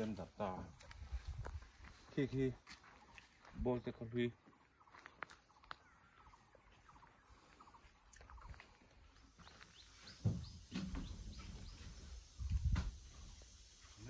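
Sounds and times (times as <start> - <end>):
faint birdsong: 0.0 - 14.0
sudden thump: 10.2 - 11.3.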